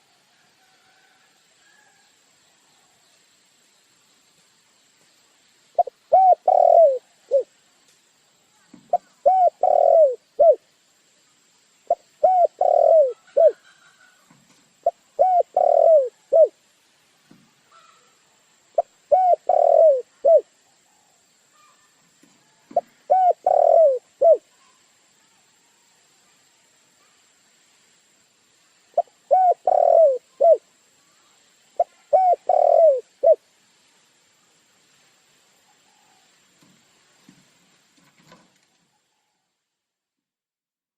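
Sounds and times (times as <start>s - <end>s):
dove cooing: 5.8s - 7.5s, 8.9s - 10.6s, 11.9s - 14.2s, 14.8s - 16.6s, 18.8s - 20.5s, 22.7s - 24.5s, 29.0s - 30.6s, 31.8s - 33.4s.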